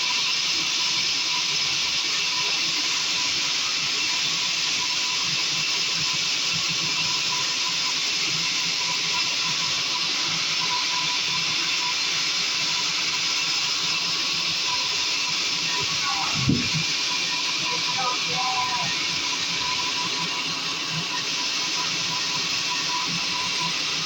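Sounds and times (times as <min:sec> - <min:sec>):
faint high whine: 0:00.0 - 0:24.0
saw cutting through wood: 0:08.5 - 0:24.0.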